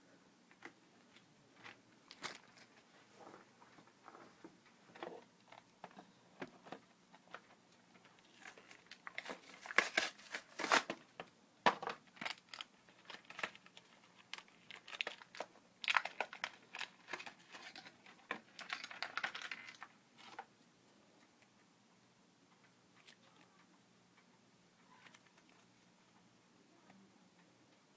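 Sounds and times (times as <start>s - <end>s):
plastic packaging crinkling and tearing: 1.6s - 2.8s, 7.3s - 11.1s, 11.9s - 20.5s.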